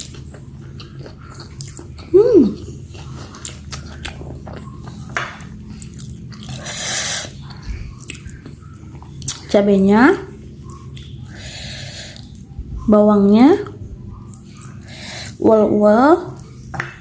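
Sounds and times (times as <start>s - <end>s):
chewing and biting food: 0.0s - 9.6s, 10.5s - 11.3s.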